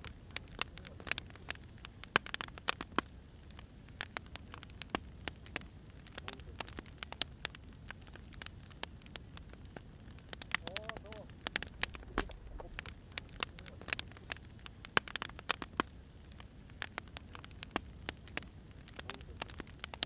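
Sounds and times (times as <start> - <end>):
firewood crackling and popping: 0.0 - 20.0
low fire rumble: 0.0 - 20.0.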